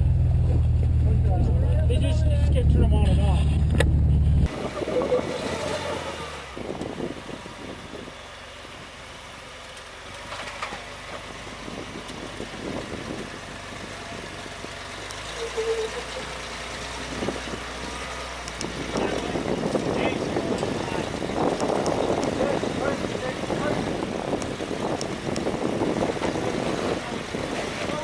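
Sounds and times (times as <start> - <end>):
vehicle engine running low: 0.0 - 28.0.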